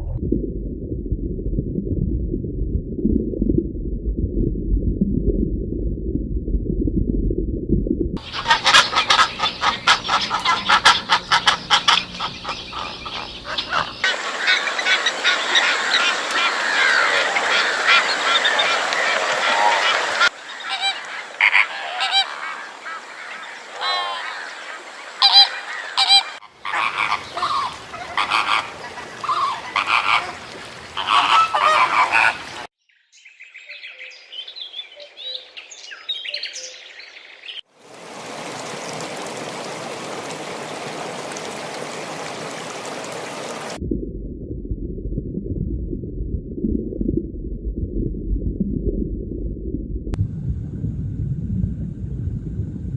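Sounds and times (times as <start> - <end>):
low rumble: 0.0 - 8.3, 43.8 - 52.9
geese honking: 8.2 - 32.7.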